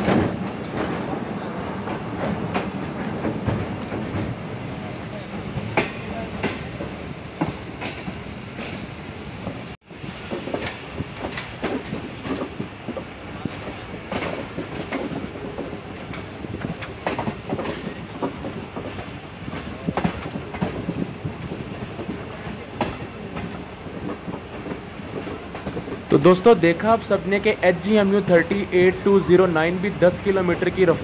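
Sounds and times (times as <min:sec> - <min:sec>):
train coaches rolling: 0:00.0 - 0:31.0
wheels clicking over rail joints: 0:05.6 - 0:26.5.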